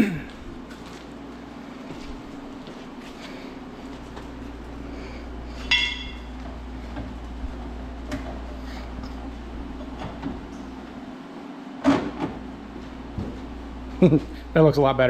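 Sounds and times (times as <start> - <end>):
steady low hum: 0.0 - 15.0
sharp metallic clink: 5.7 - 6.3.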